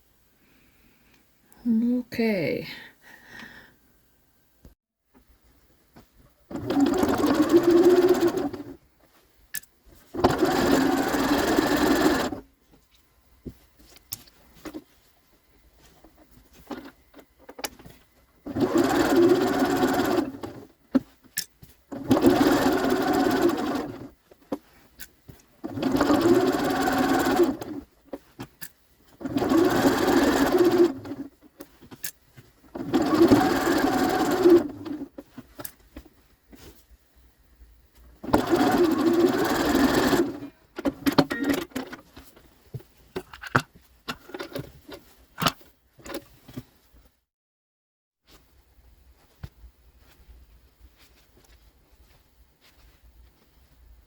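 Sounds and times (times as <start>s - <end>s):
sewing machine stitching: 6.5s - 8.8s, 10.1s - 12.4s, 18.4s - 20.7s, 21.9s - 24.2s, 25.6s - 27.9s, 29.2s - 35.3s, 38.2s - 42.0s
small clicks and handling noises: 31.5s - 32.5s.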